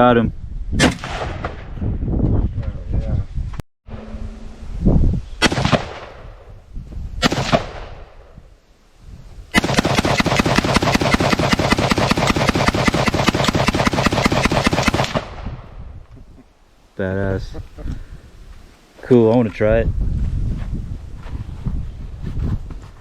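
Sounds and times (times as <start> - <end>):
single gunshots: 0.8 - 1.7, 5.4 - 6.4, 7.2 - 8.2, 9.6 - 15.6
rapid gunfire: 9.6 - 15.4.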